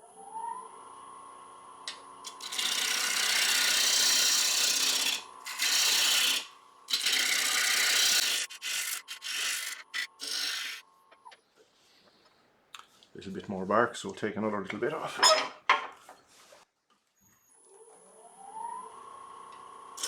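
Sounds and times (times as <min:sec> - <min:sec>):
wood lathe motor whine: 0:02.2 - 0:10.8
gouge cutting wet wood: 0:02.3 - 0:10.8.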